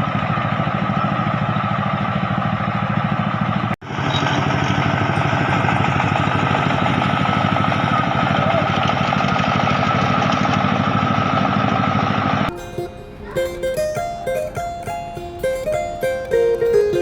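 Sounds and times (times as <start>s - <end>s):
diesel tractor engine chugging: 0.0s - 17.0s.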